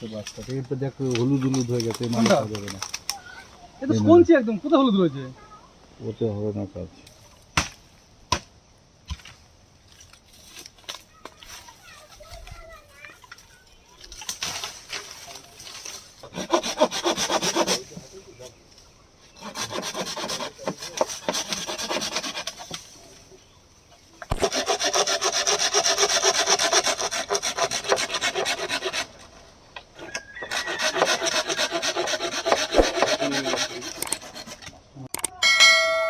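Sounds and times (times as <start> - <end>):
hand saw cutting bamboo: 1.1 - 2.8, 15.8 - 18.0, 19.3 - 23.1, 24.2 - 29.4, 30.0 - 34.8.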